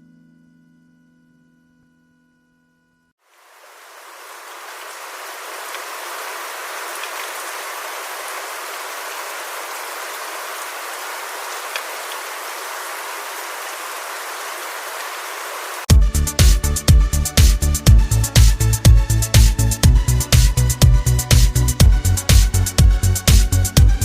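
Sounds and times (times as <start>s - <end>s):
steady even hiss: 3.3s - 15.9s
faint ticks: 11.7s - 12.2s.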